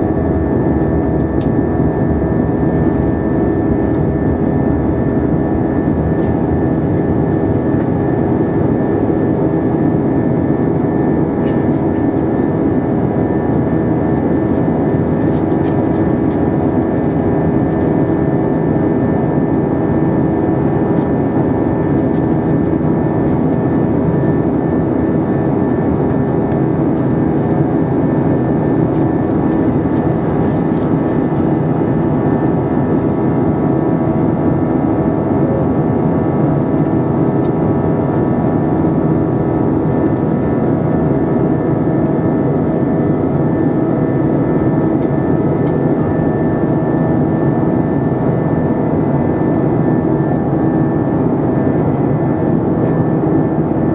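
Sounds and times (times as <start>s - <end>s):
rush of airflow: 0.0s - 7.3s
airplane engine hum: 0.0s - 53.9s.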